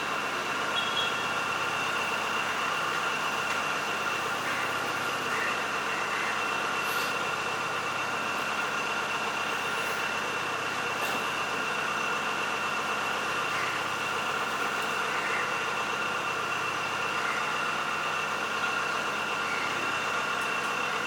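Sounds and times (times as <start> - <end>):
mechanical hum with high whine: 0.0 - 21.0.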